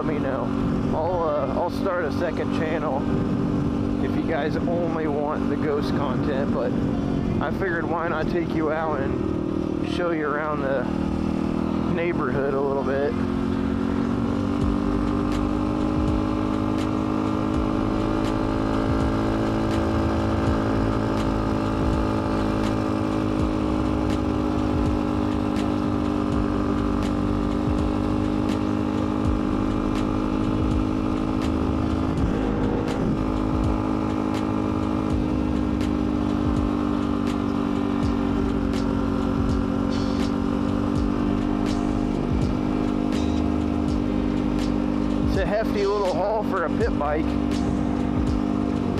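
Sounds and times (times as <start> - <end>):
small motorbike engine running: 2.5 - 4.8, 8.7 - 48.9.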